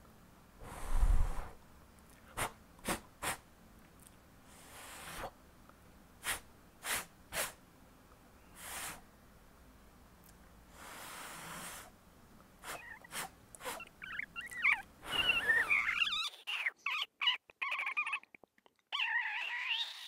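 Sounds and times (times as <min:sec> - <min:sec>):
quick sharp puffs: 0:02.3 - 0:03.4, 0:06.2 - 0:07.6.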